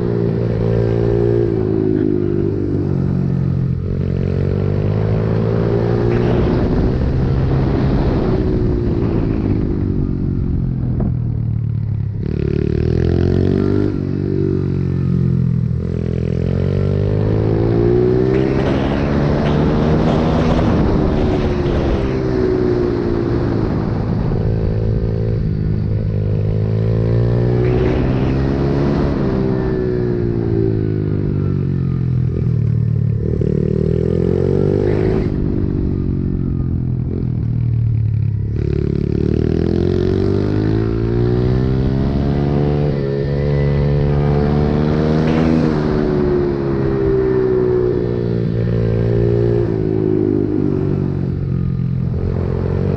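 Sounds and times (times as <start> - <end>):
pit bike engine revving: 16.3 - 22.4.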